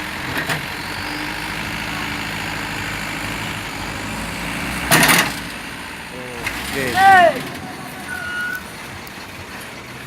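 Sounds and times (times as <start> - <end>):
truck diesel engine rumbling: 0.0 - 10.0.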